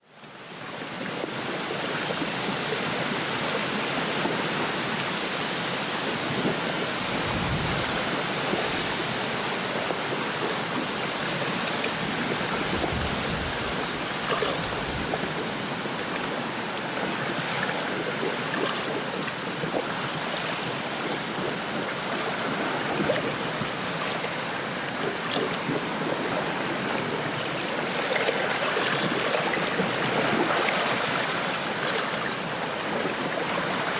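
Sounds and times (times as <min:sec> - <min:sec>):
small waves lapping: 0:00.6 - 0:33.9
wind rustling through reeds: 0:06.2 - 0:17.5.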